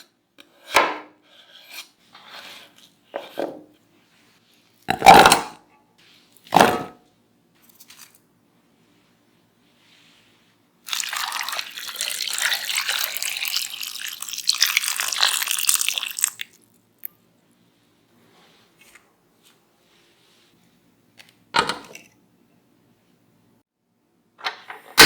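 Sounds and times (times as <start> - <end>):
water running and splashing: 10.9 - 16.7.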